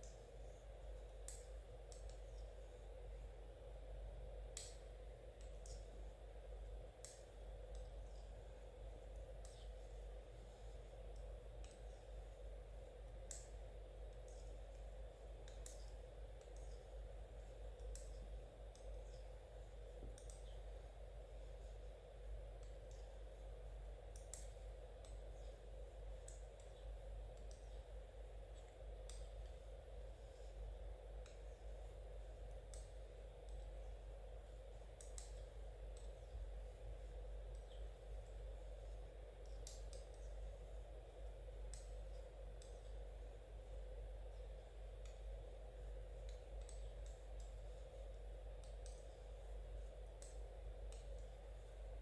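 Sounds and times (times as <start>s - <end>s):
low background hum: 0.0s - 52.0s
knitting needles clicking: 15.4s - 17.0s, 17.7s - 19.3s, 19.9s - 20.7s, 34.9s - 36.3s, 39.4s - 40.4s, 46.2s - 47.7s, 48.5s - 49.2s, 50.0s - 51.4s.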